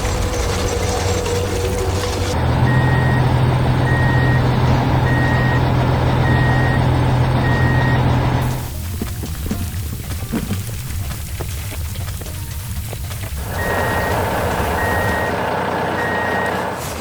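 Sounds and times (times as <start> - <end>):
heavy vehicle engine running: 0.0 - 17.0
reversing alarm beeping: 2.4 - 8.7, 13.4 - 16.8.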